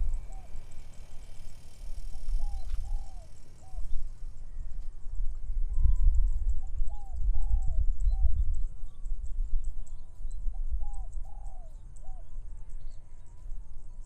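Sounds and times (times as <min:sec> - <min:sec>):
dove cooing: 0:00.0 - 0:01.3, 0:02.0 - 0:04.0
low wind rumble: 0:00.0 - 0:14.0.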